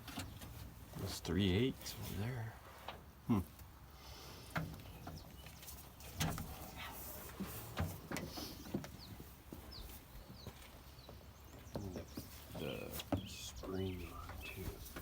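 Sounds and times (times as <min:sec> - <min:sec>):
bird chirping: 0:04.8 - 0:06.9, 0:08.4 - 0:15.0.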